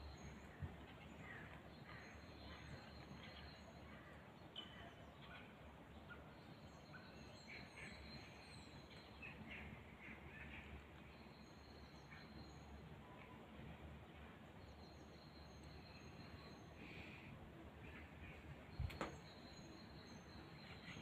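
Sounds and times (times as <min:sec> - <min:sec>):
small birds chirping: 0:14.7 - 0:21.0.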